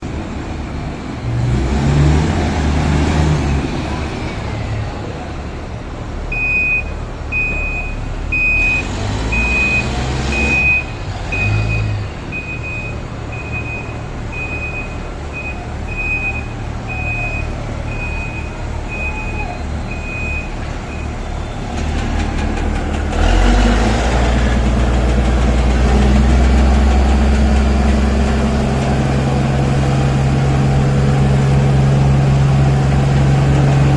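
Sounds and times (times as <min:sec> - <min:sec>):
diesel truck engine running: 0:00.0 - 0:33.9
reversing alarm beeping: 0:06.3 - 0:21.8.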